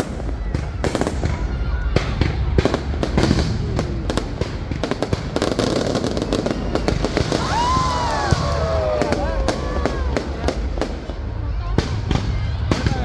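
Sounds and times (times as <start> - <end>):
firework bangs and crackles: 0.0 - 13.0.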